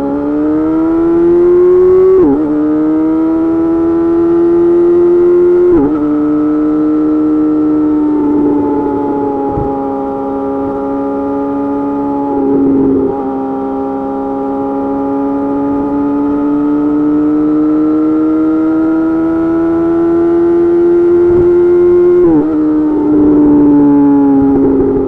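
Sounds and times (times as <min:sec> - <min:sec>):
motorcycle engine running: 0:20.4 - 0:25.0.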